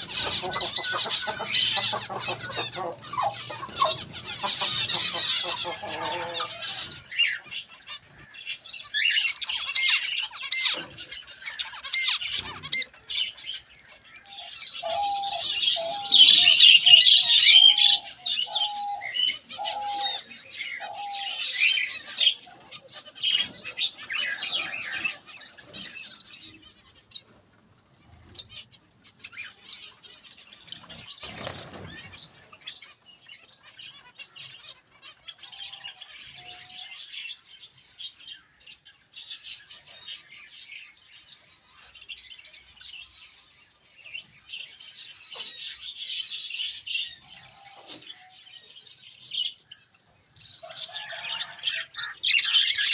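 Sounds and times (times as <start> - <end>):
short repeated lower bird calls: 0.0 - 7.8
birds chirping and squawking: 0.0 - 52.9.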